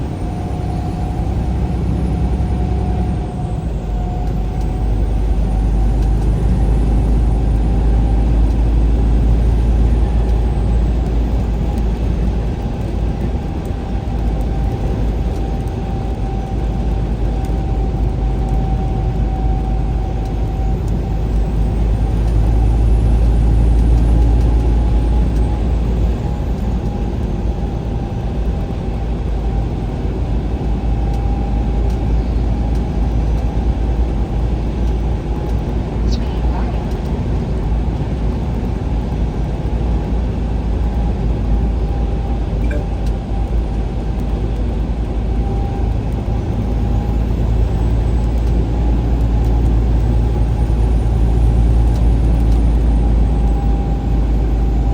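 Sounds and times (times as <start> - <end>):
road and engine rumble: 0.0 - 54.9
faint even whine: 35.8 - 37.9.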